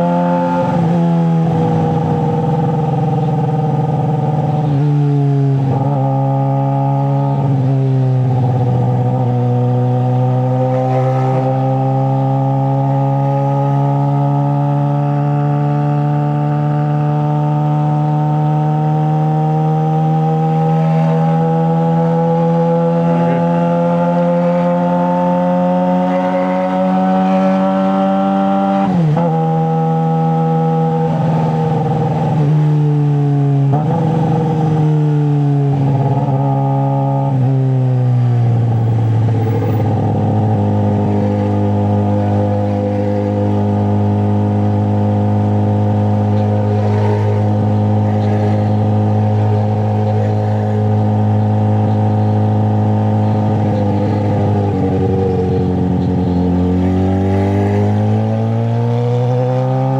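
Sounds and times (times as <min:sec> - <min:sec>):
motorcycle engine running: 0:38.7 - 0:59.8.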